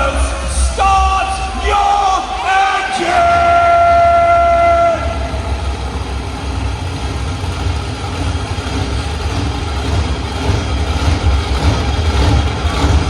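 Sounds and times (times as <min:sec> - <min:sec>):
monster truck engines rumbling: 0:00.0 - 0:13.0.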